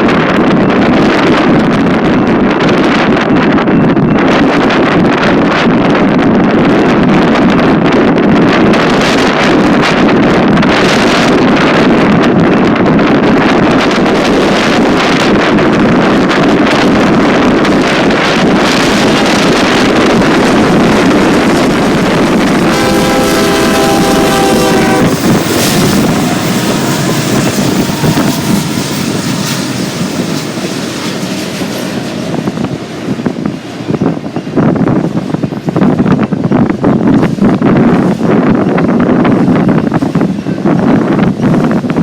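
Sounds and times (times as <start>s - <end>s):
passing train noise: 0.0s - 42.0s
wind buffeting microphone: 0.0s - 42.0s
train air horn blast: 21.1s - 30.6s.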